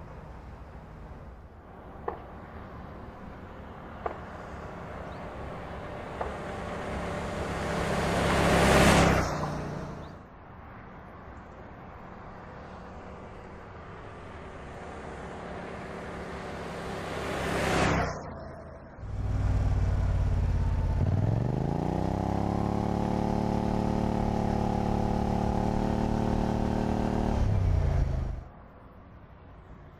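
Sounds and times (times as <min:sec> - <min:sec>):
car driving by: 0:03.7 - 0:10.2, 0:14.7 - 0:28.5.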